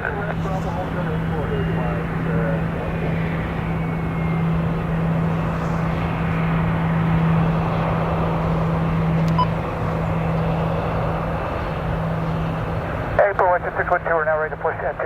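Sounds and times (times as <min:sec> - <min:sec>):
jet engine drone: 0:00.0 - 0:15.0.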